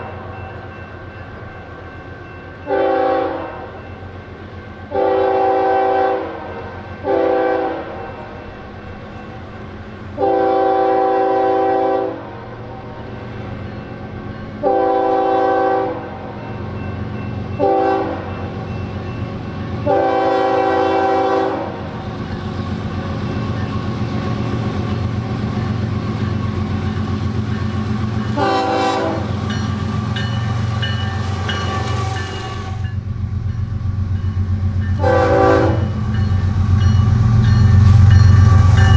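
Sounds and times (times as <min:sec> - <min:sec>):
train rumble: 0:00.0 - 0:38.9
locomotive air horn blasts: 0:02.7 - 0:03.7, 0:04.9 - 0:08.0, 0:10.2 - 0:12.3, 0:14.6 - 0:16.1, 0:17.6 - 0:18.3, 0:19.8 - 0:21.8, 0:28.2 - 0:29.4, 0:35.0 - 0:36.0.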